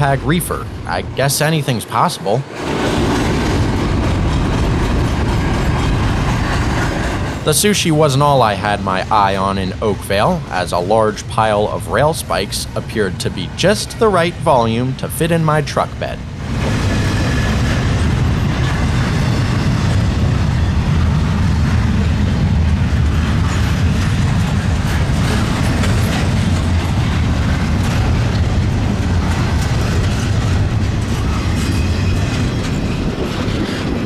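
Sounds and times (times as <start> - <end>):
freight train rumbling past: 0.0 - 34.0
wheels clicking over rail joints: 16.4 - 34.0.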